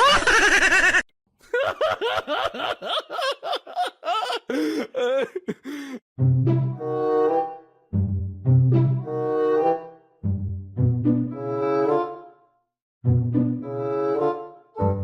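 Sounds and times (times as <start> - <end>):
person laughing: 0.0 - 6.0
music with low strings: 6.2 - 12.3, 13.0 - 15.0.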